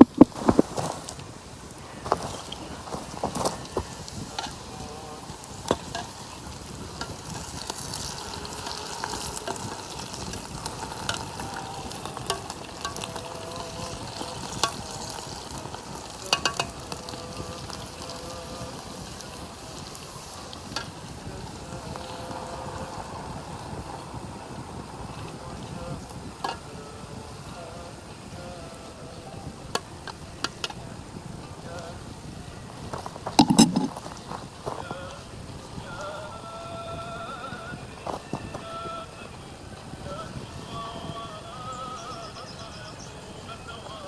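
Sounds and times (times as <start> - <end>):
oil popping: 0.0 - 1.2, 5.7 - 18.4, 32.9 - 34.4
fries sizzling in hot oil: 0.0 - 43.7.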